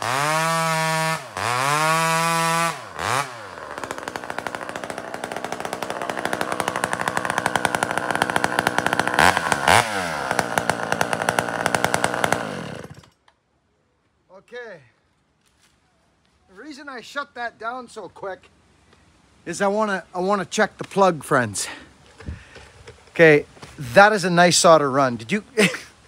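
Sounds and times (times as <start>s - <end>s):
chainsaw revving and idling: 0.0s - 13.2s.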